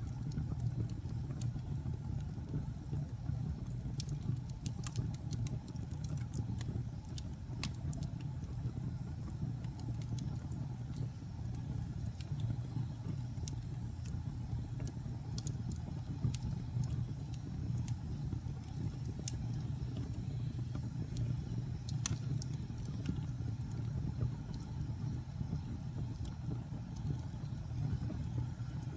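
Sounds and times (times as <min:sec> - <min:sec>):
fire crackling and popping: 0:00.0 - 0:28.9
low fire rumble: 0:00.0 - 0:28.9.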